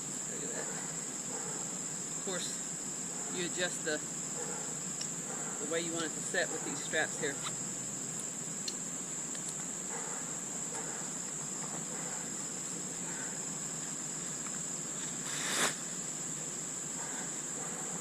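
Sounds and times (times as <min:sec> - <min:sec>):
crickets trilling: 0:00.0 - 0:18.0
rustling noise: 0:14.4 - 0:16.0.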